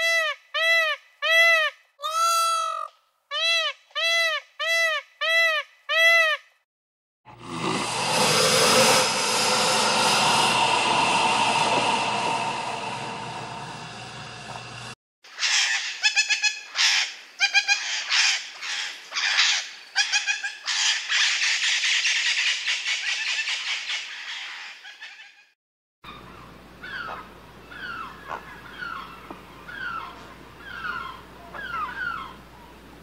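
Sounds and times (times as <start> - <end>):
chorus of bird calls: 26.1 - 32.8.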